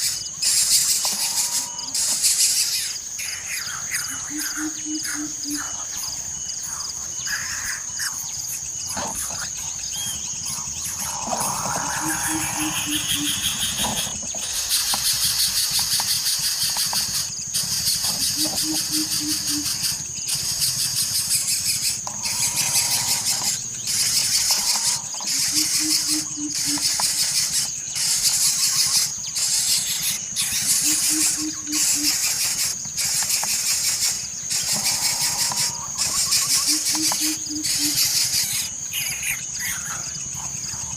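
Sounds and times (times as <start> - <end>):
coucal deep hooting call: 11.3 - 13.5, 18.3 - 19.8.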